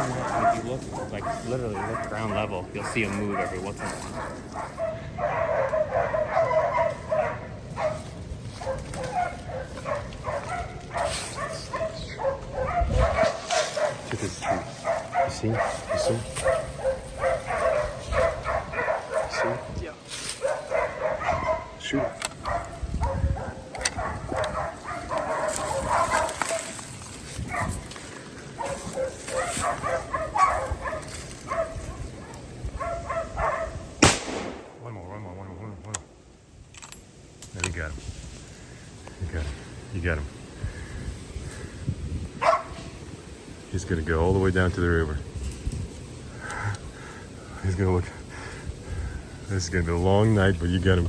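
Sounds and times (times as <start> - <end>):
dogs barking rapidly: 0.0 - 34.8, 42.3 - 43.2.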